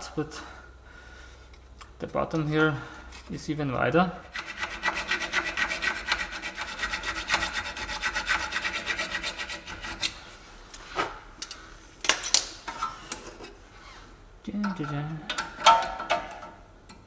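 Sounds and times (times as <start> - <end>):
hacksaw cutting metal: 4.3 - 10.2.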